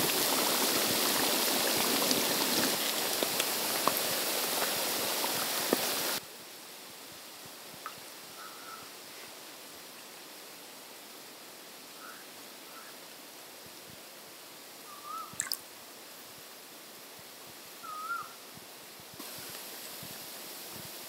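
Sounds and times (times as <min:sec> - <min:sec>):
faint steady hiss: 0:00.0 - 0:21.0
bird calls whistled notes: 0:14.9 - 0:15.5, 0:17.8 - 0:18.4.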